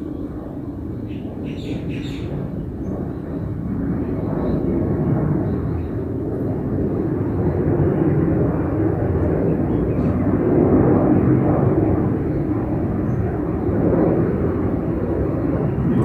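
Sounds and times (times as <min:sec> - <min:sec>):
airliner engines rumbling: 0:00.0 - 0:16.0.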